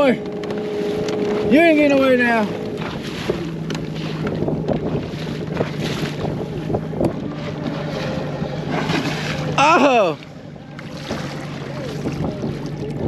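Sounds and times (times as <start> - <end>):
water lapping at boat: 0.0 - 13.0
wind buffeting microphone: 0.0 - 13.0
knocks on boat: 2.6 - 7.2, 10.8 - 12.4.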